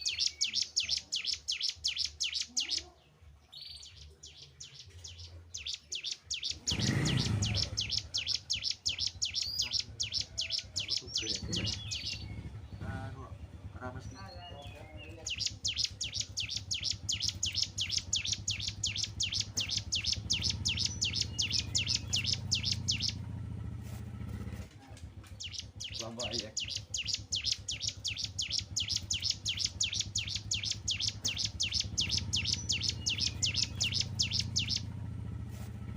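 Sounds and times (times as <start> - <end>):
bird singing sharp chirps: 0.0 - 23.5, 25.2 - 35.4
low rumble: 9.1 - 35.9.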